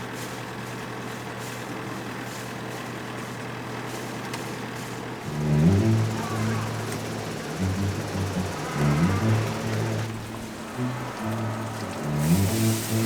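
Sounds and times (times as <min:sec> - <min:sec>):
boat engine humming: 0:04.7 - 0:13.0.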